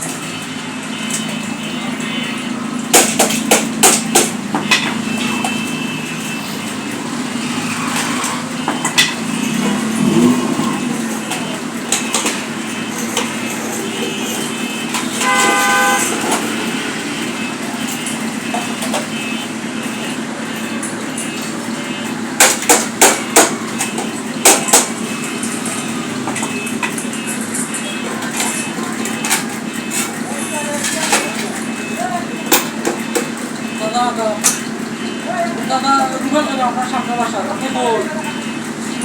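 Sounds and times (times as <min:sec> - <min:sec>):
vehicle horn: 0:00.0 - 0:30.2
street noise: 0:00.0 - 0:39.0.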